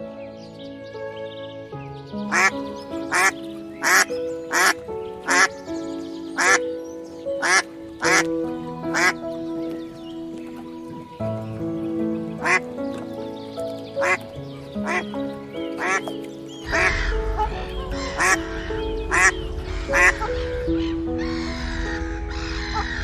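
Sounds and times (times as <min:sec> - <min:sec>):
calm background music: 0:00.0 - 0:23.0
bird calling: 0:02.2 - 0:23.0
low rumbling noise: 0:16.6 - 0:23.0.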